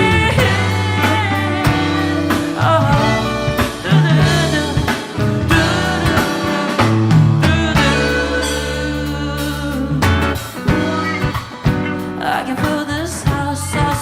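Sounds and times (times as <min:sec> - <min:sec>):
drum hits: 0:00.0 - 0:08.9, 0:10.0 - 0:12.2
live band playing: 0:00.0 - 0:14.0
person singing: 0:00.0 - 0:14.0.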